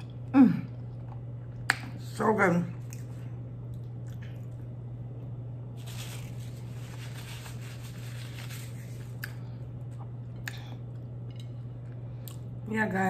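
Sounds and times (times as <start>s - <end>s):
steady low hum: 0.0s - 13.0s
wet mouth clicks: 10.4s - 10.8s.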